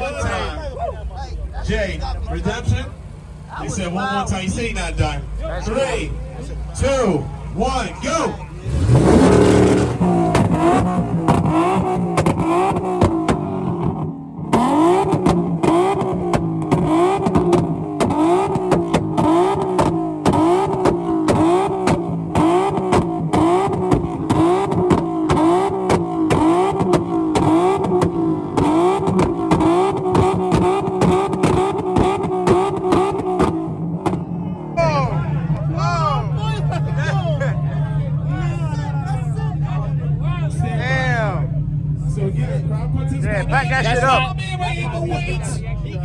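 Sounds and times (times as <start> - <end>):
sharp exhaust crackles: 0.0 - 46.0
car engine revving in blips: 1.4 - 46.0.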